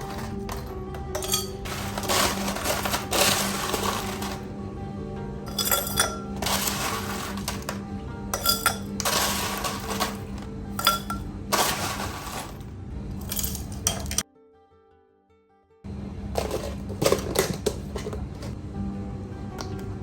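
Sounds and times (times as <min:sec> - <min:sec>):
small hard objects clinking: 0:00.0 - 0:04.5, 0:05.5 - 0:14.2
background music: 0:00.0 - 0:20.0.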